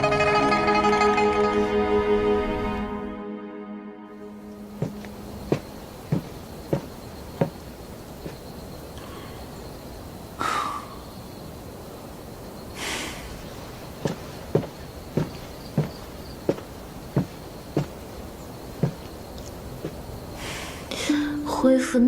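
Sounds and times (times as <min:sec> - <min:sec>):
crickets chirring: 0:04.4 - 0:21.6
soft thuds of footsteps: 0:04.5 - 0:08.9, 0:13.2 - 0:20.6.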